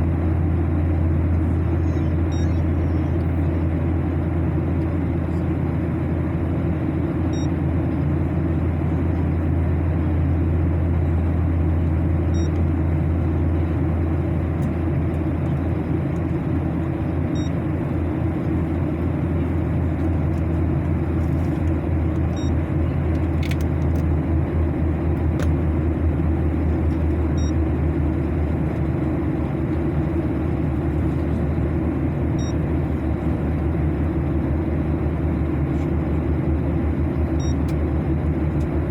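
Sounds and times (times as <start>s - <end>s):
airliner cabin engine drone: 0.0s - 38.9s
faint short high beep: 2.3s - 2.7s.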